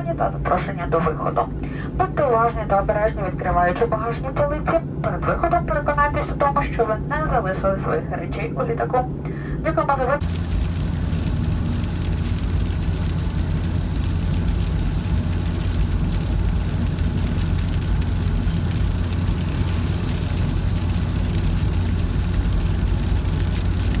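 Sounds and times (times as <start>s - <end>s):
low aircraft cabin rumble: 0.0s - 24.0s.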